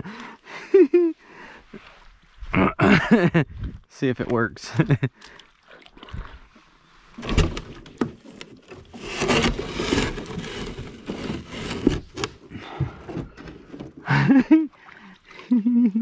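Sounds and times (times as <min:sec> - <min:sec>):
kayak hull scraping on rocks: 0:07.1 - 0:14.0.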